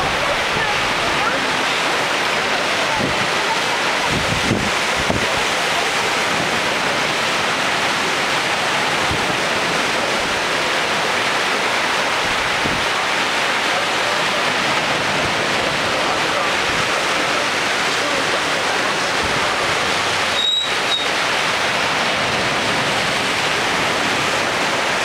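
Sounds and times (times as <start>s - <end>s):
waves breaking on beach: 0.0s - 25.0s
wind buffeting microphone: 2.9s - 6.7s, 12.2s - 13.0s.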